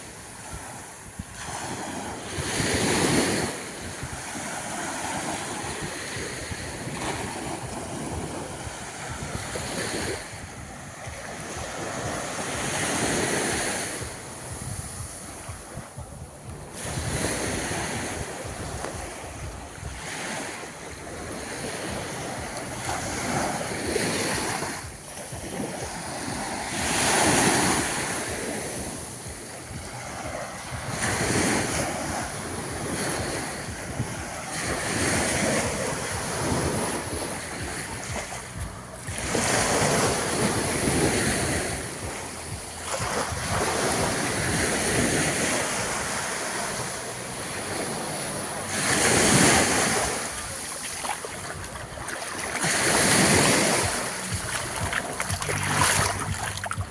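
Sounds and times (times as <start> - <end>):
wind buffeting microphone: 0.0 - 46.2, 46.8 - 56.9
small waves washing onto sand: 0.0 - 56.9.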